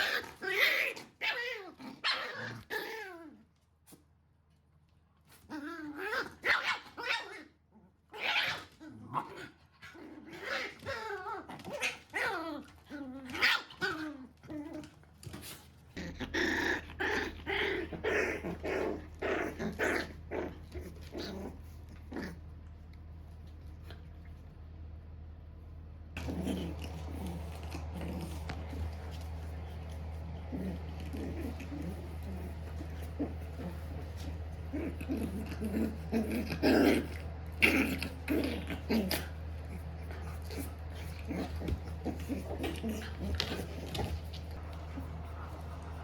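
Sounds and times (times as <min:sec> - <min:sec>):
dogs growling and barking: 0:00.0 - 0:03.6, 0:05.3 - 0:22.8, 0:26.2 - 0:46.0
steady low hum: 0:15.0 - 0:46.0.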